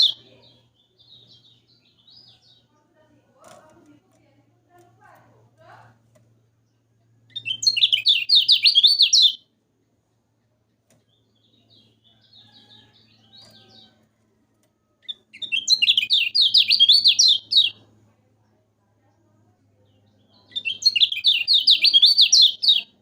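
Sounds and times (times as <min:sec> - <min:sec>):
bird rapid high chirping: 0:00.0 - 0:02.7, 0:07.3 - 0:09.4, 0:15.0 - 0:17.8, 0:20.0 - 0:23.0
soft bird twittering: 0:00.0 - 0:03.0, 0:06.7 - 0:09.5, 0:15.0 - 0:17.8, 0:18.4 - 0:23.0.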